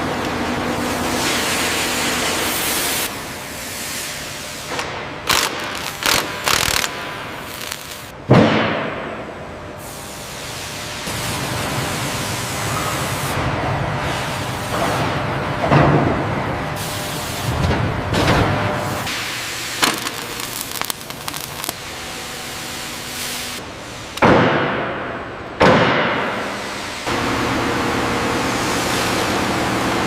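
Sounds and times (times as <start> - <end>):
steady factory hiss: 0.6 - 15.4, 16.5 - 17.6, 18.7 - 30.0
sharp knocks and bangs: 8.2 - 9.3, 24.2 - 26.4.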